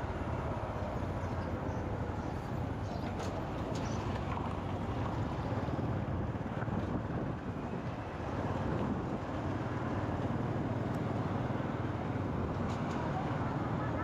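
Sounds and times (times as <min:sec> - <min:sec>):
wind buffeting microphone: 0:02.0 - 0:10.7.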